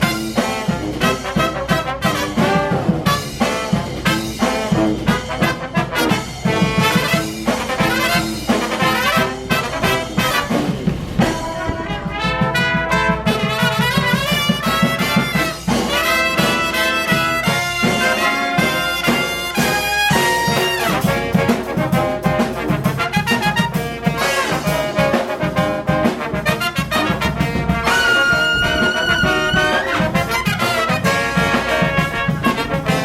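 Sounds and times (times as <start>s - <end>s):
brass band playing: 0.0s - 33.0s.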